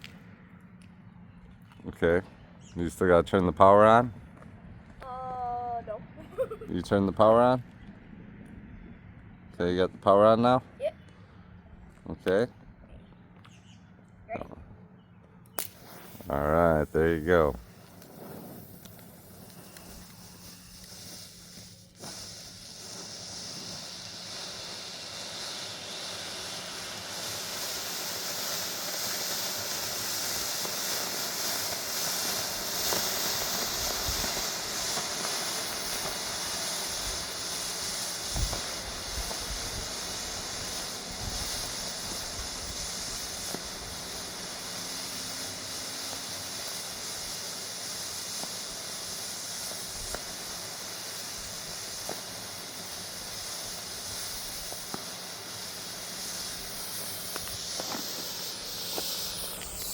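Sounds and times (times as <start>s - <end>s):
smoke bomb hissing: 5.1s - 7.5s, 15.5s - 59.9s.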